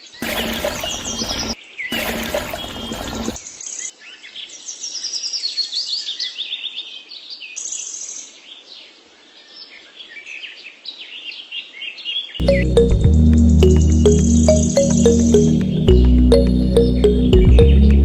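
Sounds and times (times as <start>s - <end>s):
birds chirping and trilling: 0.0s - 6.8s.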